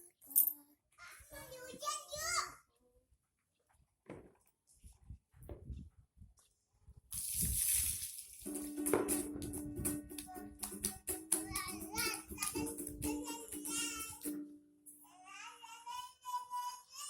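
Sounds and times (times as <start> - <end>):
child singing: 9.8 - 14.4, 15.0 - 17.0.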